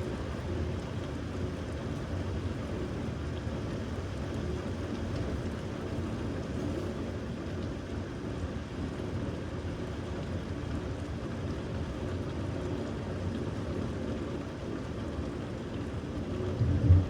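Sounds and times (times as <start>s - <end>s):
steady rain: 0.0s - 17.0s
low rumble: 16.5s - 17.0s.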